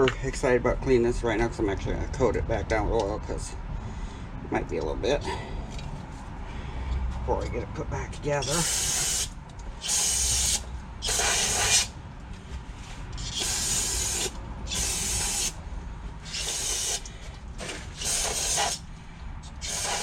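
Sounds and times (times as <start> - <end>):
aerosol spray hissing bursts: 8.4 - 11.9, 13.2 - 15.6, 16.3 - 17.0, 18.0 - 18.8, 19.6 - 20.0.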